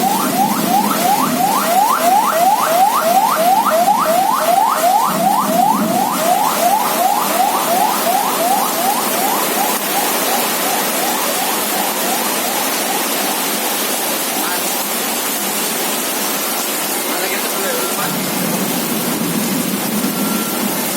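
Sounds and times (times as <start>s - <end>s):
electronic alarm whooping: 0.0s - 14.0s
heavy rain: 0.0s - 20.9s
wind: 0.0s - 20.9s.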